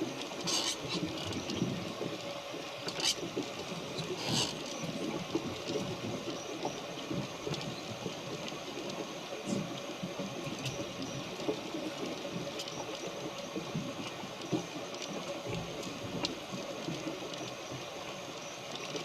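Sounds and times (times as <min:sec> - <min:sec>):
hissing splashes: 0:00.0 - 0:01.6, 0:02.5 - 0:04.9
water rushing along boat hull: 0:00.0 - 0:19.0.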